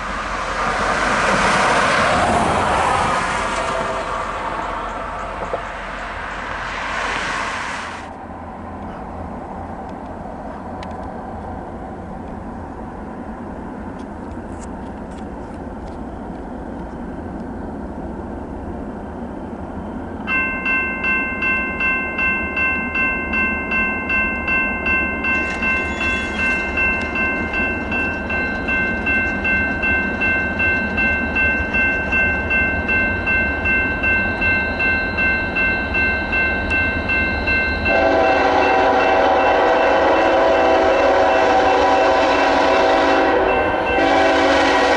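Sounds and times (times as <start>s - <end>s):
railroad crossing bell ringing: 3.0s - 6.6s, 20.1s - 44.9s
train horn blowing: 3.4s - 5.8s, 37.9s - 44.9s.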